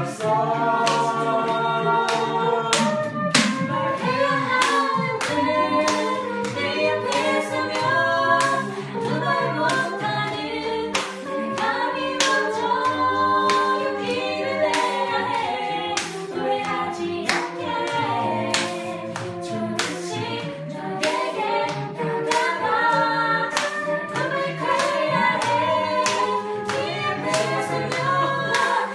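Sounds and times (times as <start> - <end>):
vocal group singing a cappella: 0.0 - 28.9
sharp percussive hits: 2.1 - 6.0.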